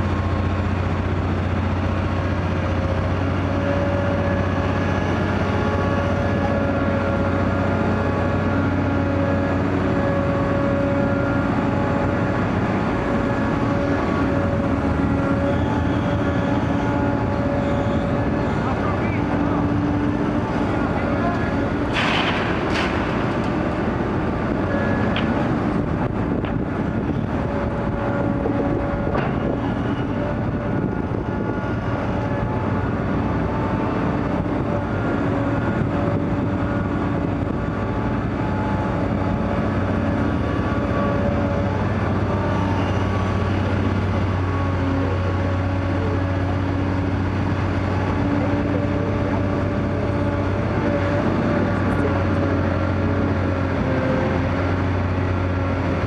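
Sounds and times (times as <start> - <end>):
diesel engine under load: 0.0 - 56.0
hydraulic whine: 2.8 - 33.8.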